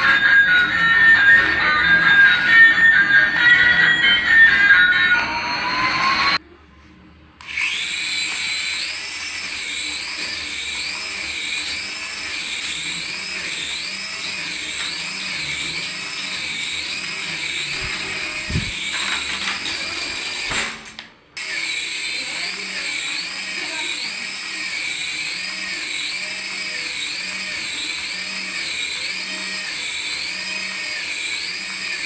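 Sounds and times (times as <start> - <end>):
electronic warbling siren tone: 0.0 - 6.4
small electric motor whirring: 7.4 - 20.6, 21.4 - 32.0.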